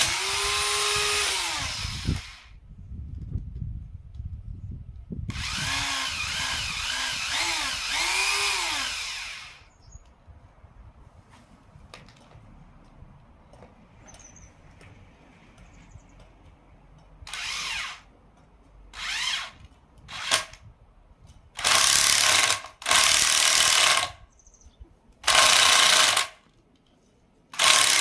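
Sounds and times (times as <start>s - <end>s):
power drill boring into log: 0.0s - 2.6s, 5.3s - 9.7s, 17.3s - 18.1s, 19.0s - 20.6s, 21.6s - 24.2s, 25.2s - 26.4s, 27.6s - 28.0s.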